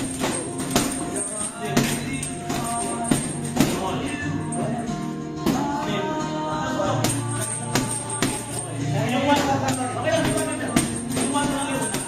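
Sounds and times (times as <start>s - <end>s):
background music with singing: 0.0s - 12.0s.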